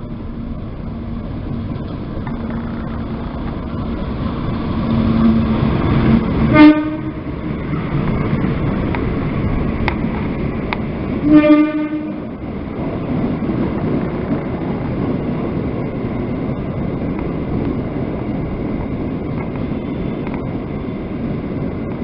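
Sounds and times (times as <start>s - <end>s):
train rumbling past: 0.0s - 22.0s
train horn blast: 6.4s - 7.3s, 11.2s - 12.3s.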